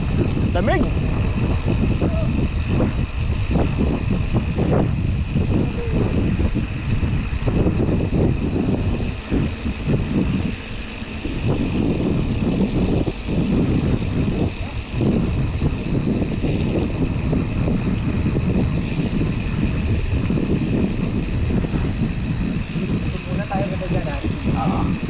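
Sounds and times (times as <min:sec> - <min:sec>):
bike tyre and trail noise: 0:00.0 - 0:25.0
wind buffeting microphone: 0:00.0 - 0:25.0.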